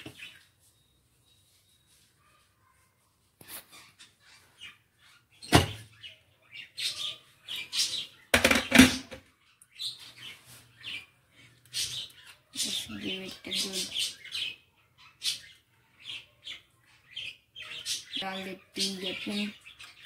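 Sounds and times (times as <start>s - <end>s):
birds chirping: 0.0s - 2.9s, 3.6s - 20.0s
kitchenware clicks and knocks: 5.5s - 5.8s, 8.3s - 9.2s.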